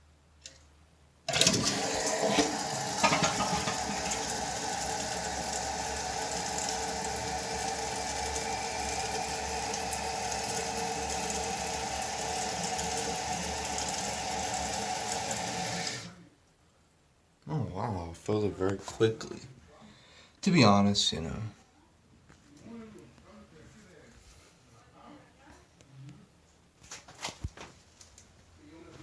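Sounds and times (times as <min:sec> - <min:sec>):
toilet tank refilling hiss: 0:01.3 - 0:16.1
toilet flushing: 0:01.3 - 0:16.2.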